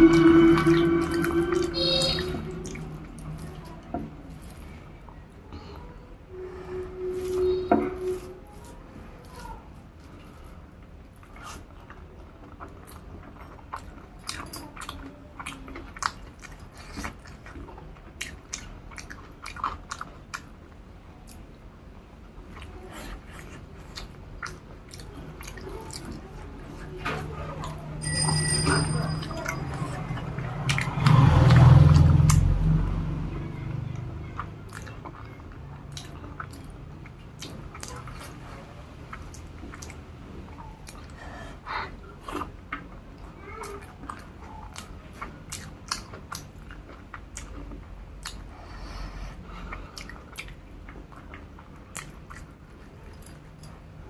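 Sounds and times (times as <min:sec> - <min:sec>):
low rumble: 0:00.0 - 0:04.7
wet chewing and mouth clicks: 0:11.1 - 0:21.5, 0:22.4 - 0:27.8, 0:29.4 - 0:33.0, 0:33.7 - 0:41.4, 0:42.1 - 0:53.6.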